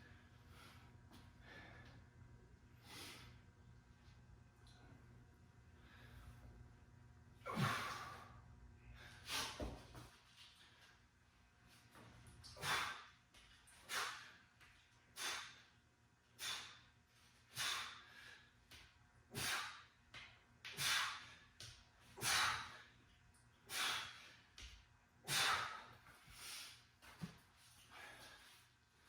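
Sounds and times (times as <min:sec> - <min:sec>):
person exhaling hard: 0:07.5 - 0:08.2.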